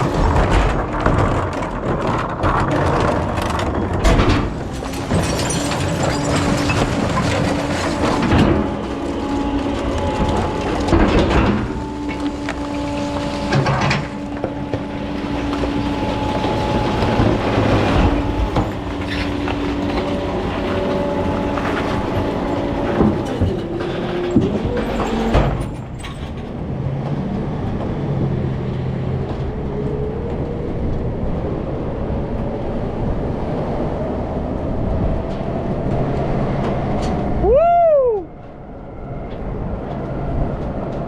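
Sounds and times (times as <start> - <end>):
loud clanks: 0.0 - 27.2
rattling mechanical noise: 0.0 - 37.4
recycling truck whine: 0.0 - 41.0.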